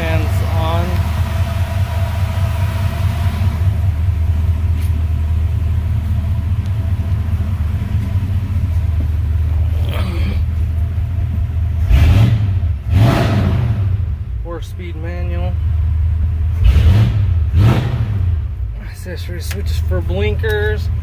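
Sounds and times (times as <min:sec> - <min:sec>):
electric cooling fans running: 0:00.0 - 0:12.1
truck engine idling and revving: 0:00.0 - 0:21.0.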